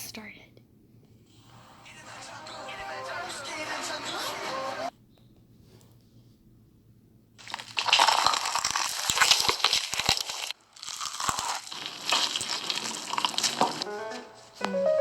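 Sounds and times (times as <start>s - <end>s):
snack crinkling and crunching: 7.4s - 13.9s.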